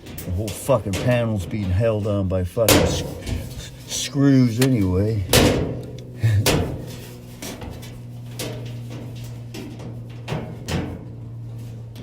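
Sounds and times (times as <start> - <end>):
steady low hum: 0.0 - 12.0
metallic knocks and clunks: 2.7 - 3.9.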